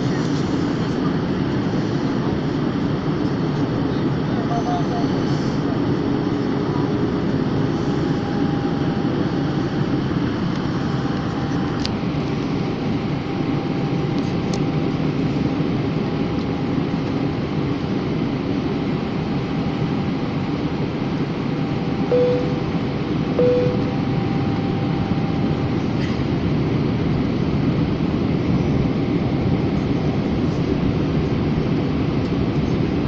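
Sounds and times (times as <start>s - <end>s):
aircraft cabin engine drone: 0.0s - 33.0s
faint constant tone: 22.0s - 25.9s.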